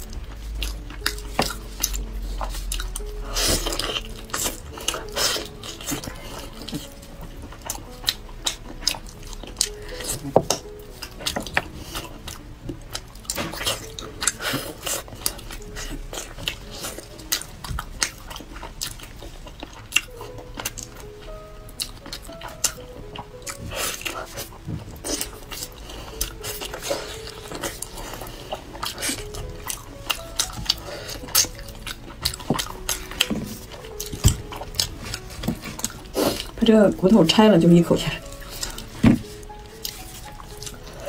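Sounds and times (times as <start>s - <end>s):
chewing and biting meat: 0.0s - 36.6s, 38.2s - 41.0s.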